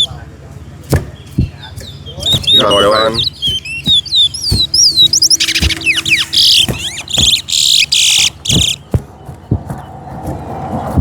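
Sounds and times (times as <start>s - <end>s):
dull knocks: 0.8s - 10.9s
finches singing buzzy warbles: 1.2s - 8.9s.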